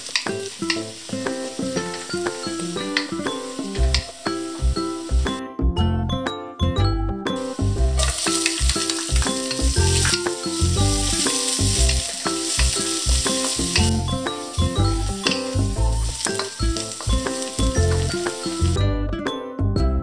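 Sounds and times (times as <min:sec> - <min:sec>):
onion and garlic sizzling in oil: 0:00.0 - 0:05.4, 0:07.4 - 0:18.8
background music with steady beat: 0:00.0 - 0:20.0
wooden spatula stirring: 0:08.0 - 0:18.8.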